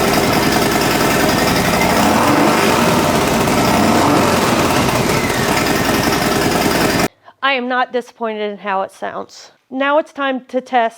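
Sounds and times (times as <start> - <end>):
motorcycle exhaust beat: 0.0 - 7.1.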